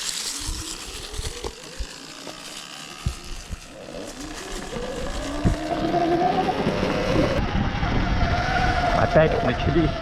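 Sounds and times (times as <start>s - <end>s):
electric motor whine: 0.0s - 10.0s
wind rumble: 3.0s - 10.0s.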